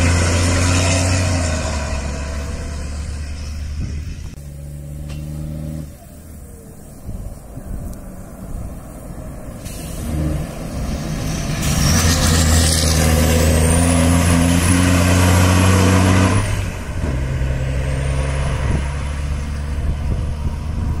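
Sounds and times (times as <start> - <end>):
truck diesel engine passing: 0.0 - 21.0
engine hiss: 2.3 - 13.8.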